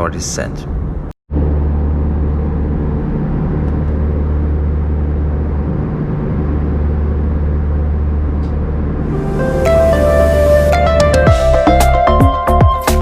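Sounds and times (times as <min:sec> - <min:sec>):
airplane cabin engine drone: 0:00.7 - 0:11.4
airflow noise: 0:01.4 - 0:11.6.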